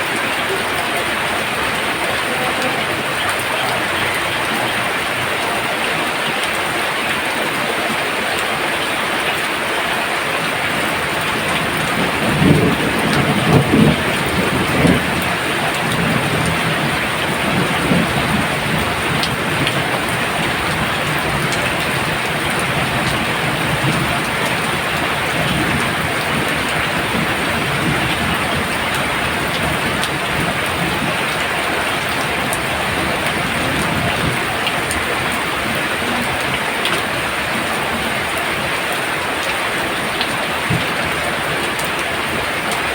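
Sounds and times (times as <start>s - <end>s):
heavy rain pouring: 0.0s - 42.9s
thunder rumbling: 10.4s - 42.9s.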